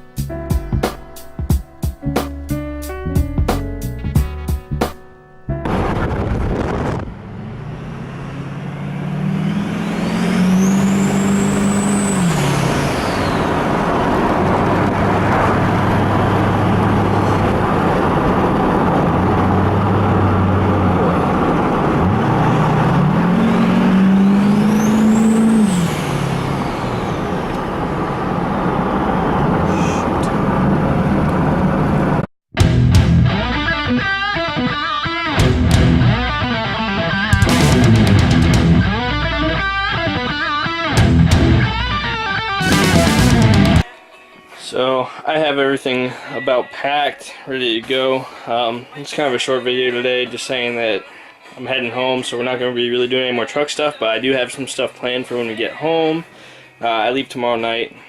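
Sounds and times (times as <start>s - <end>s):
road and wind noise: 0.0s - 32.3s, 35.4s - 43.9s
diesel pickup engine: 5.5s - 32.3s, 35.4s - 43.9s.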